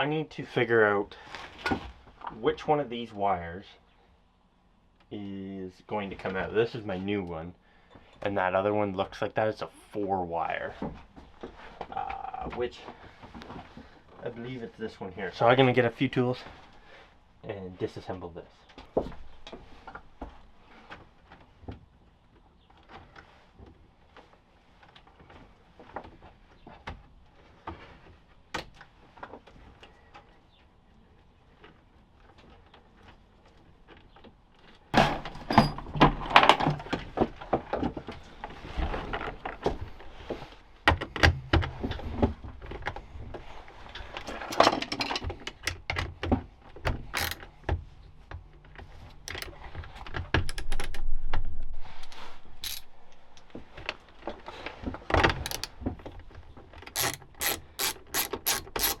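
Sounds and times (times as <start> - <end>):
hand tools and metal parts clattering: 35.0 - 37.2, 47.0 - 47.6, 52.6 - 53.9, 54.7 - 56.0, 56.8 - 59.0.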